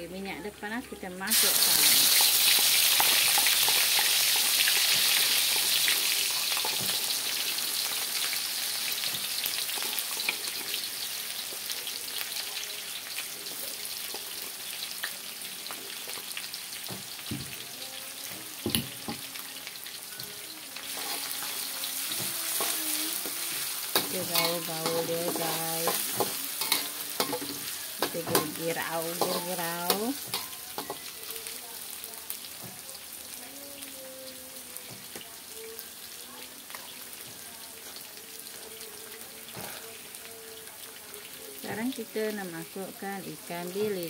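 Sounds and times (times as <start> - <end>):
garlic sizzling in hot oil: 0.3 - 44.0
spatula stirring in wok: 20.9 - 31.1.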